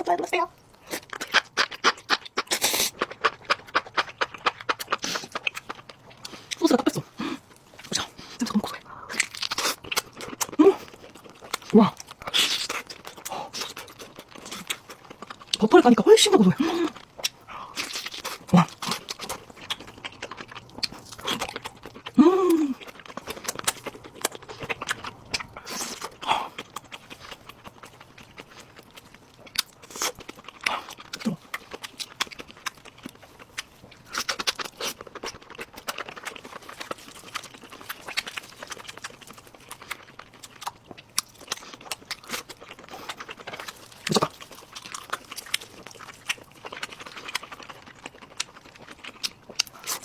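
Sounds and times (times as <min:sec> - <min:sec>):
chewing with wet mouth clicks: 0:00.6 - 0:50.0
person humming in enjoyment: 0:22.2 - 0:22.8.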